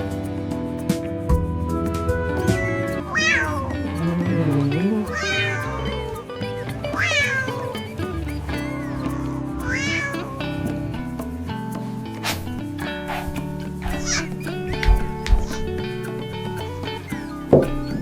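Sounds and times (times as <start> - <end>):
background music: 0.0 - 18.0
cat meowing: 2.6 - 10.8, 13.1 - 14.3.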